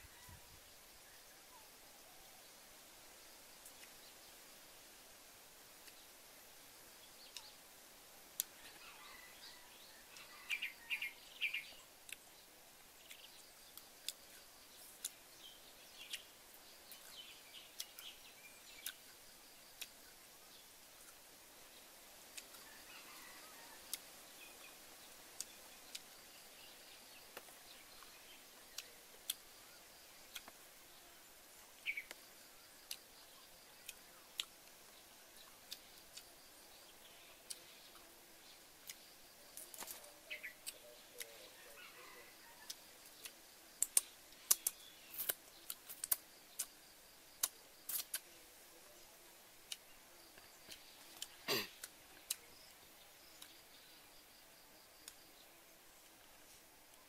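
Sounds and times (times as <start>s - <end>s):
faint forest background: 0.0s - 57.0s
person chewing food: 33.8s - 34.5s, 47.4s - 48.2s.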